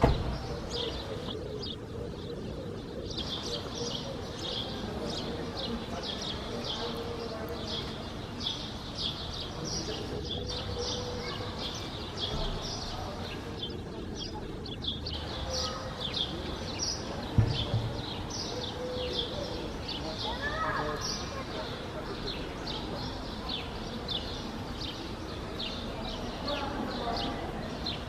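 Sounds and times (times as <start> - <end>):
small birds chirping: 0.0 - 28.0
low thump: 17.3 - 18.0.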